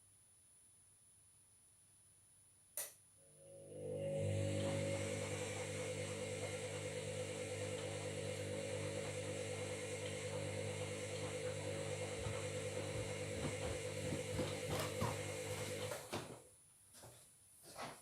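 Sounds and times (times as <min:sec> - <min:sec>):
washing machine motor hum: 0:03.3 - 0:16.5.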